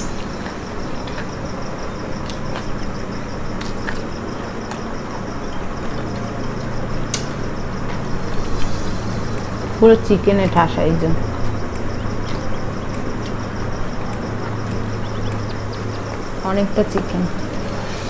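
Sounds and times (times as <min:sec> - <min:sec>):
background hiss and hum: 0:00.0 - 0:18.0
chewing fried food: 0:00.1 - 0:08.6, 0:11.3 - 0:16.4.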